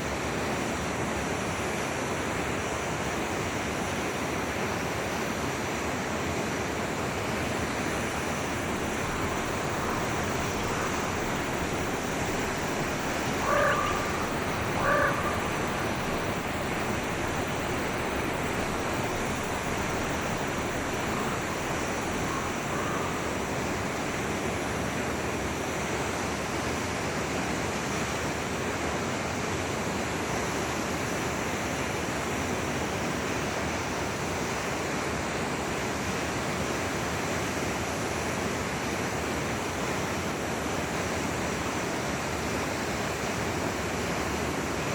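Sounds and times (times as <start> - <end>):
forest stream rushing: 0.0 - 44.9
animal calls: 8.8 - 17.3, 20.4 - 23.8.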